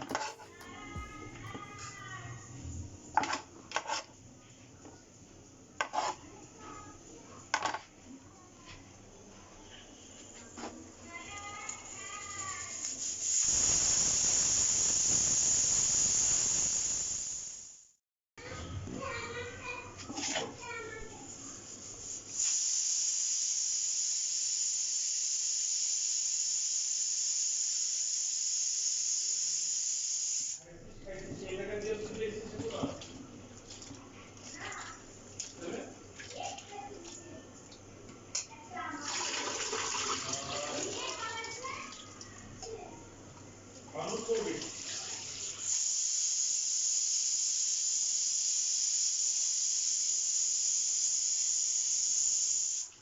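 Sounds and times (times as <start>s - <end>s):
steady hiss: 11.0s - 18.0s, 21.1s - 30.6s, 45.5s - 53.0s.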